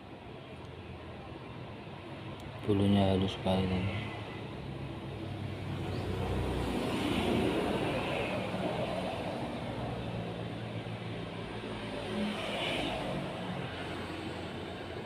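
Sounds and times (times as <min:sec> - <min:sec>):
motor vehicle passing: 0:05.1 - 0:14.8.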